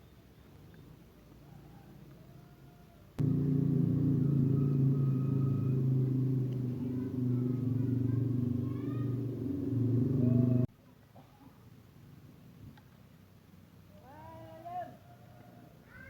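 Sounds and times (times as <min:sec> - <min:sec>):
small engine running: 0:03.2 - 0:10.7.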